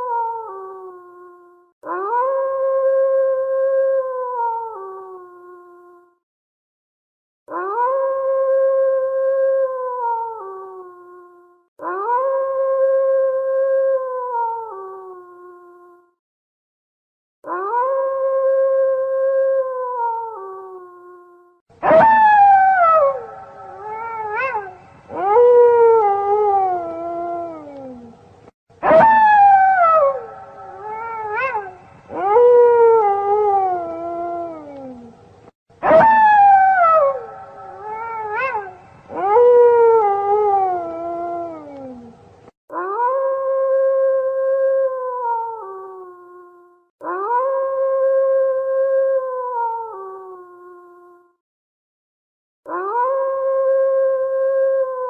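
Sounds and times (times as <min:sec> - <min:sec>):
wolves howling: 0:21.8 - 0:28.2, 0:28.8 - 0:35.1, 0:35.8 - 0:44.4.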